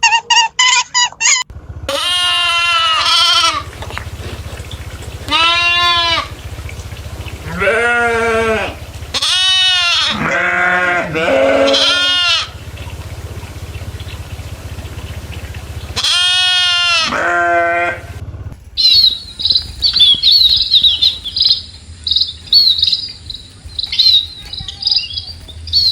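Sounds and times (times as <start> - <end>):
steady low hum: 1.4 - 25.9
goats bleating: 1.9 - 12.7, 15.8 - 18.1.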